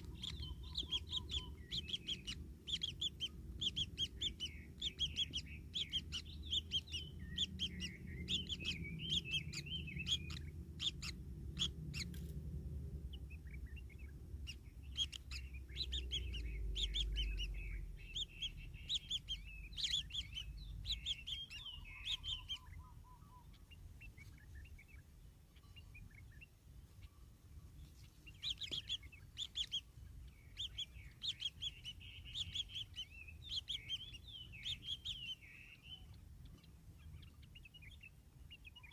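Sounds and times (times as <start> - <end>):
low rumble: 0.0 - 26.3
kingfisher chicks chirping: 0.0 - 38.9.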